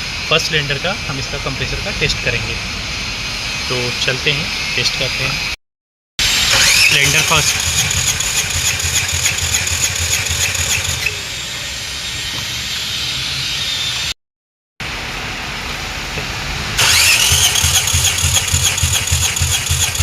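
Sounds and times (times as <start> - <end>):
starter motor whine: 6.2 - 12.2, 16.8 - 20.0
car engine cranking without firing: 6.5 - 11.1, 16.8 - 20.0.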